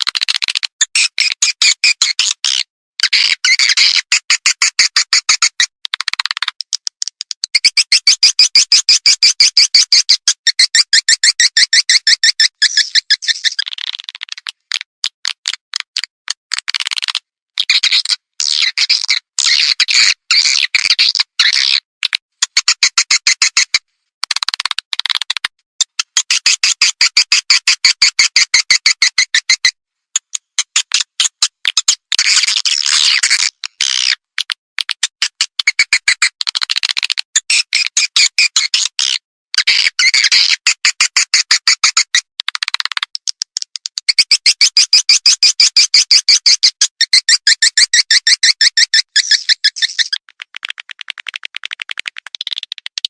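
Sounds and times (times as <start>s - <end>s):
recorded swiftlet chirps: 7.1s - 14.0s, 44.0s - 51.0s.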